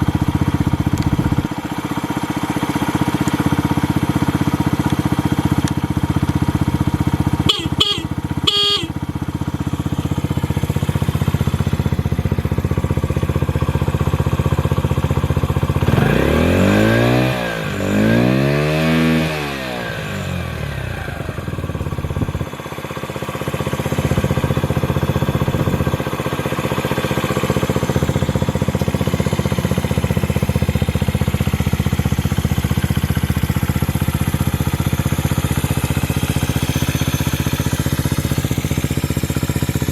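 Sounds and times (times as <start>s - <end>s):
scooter engine idling and revving: 0.0s - 39.9s.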